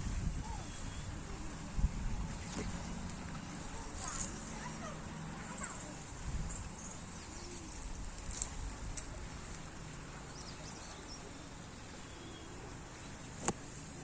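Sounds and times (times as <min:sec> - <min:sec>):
faint bird chirps: 0:00.4 - 0:01.4, 0:10.3 - 0:13.4.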